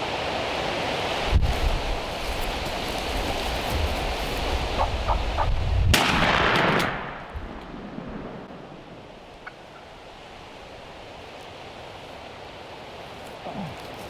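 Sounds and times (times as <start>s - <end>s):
turkey calls: 4.5s - 5.7s, 8.9s - 10.1s
loud shotgun shot: 5.9s - 9.0s.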